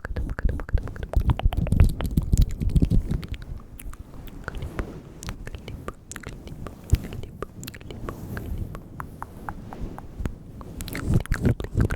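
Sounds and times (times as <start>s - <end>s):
wet mouth clicks and smacks: 0.0s - 6.4s, 10.8s - 11.9s.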